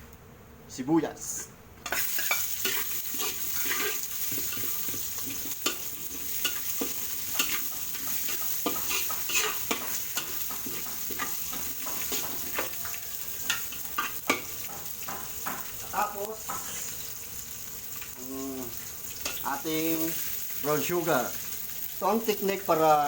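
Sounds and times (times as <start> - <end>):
onion and garlic sizzling in oil: 1.8 - 23.0
spoon scraping and tapping pan: 1.9 - 16.9.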